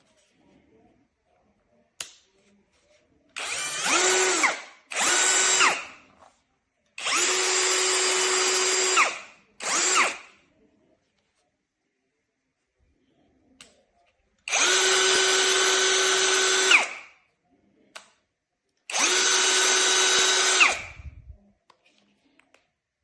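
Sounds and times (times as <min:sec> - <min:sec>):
cordless drill motor running: 0:03.4 - 0:05.9, 0:07.0 - 0:10.2, 0:14.5 - 0:17.0, 0:18.9 - 0:21.2.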